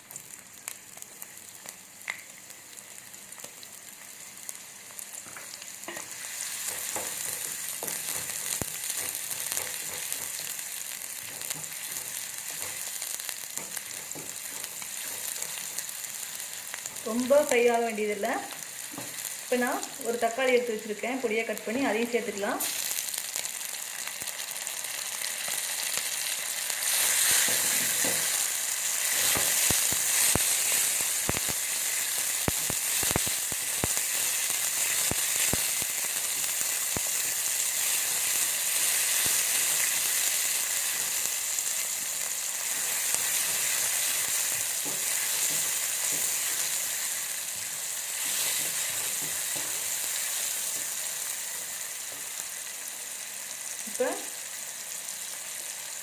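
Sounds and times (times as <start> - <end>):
onion sizzling in hot oil: 0.0 - 56.0
spatula knocking on pan: 13.6 - 15.6.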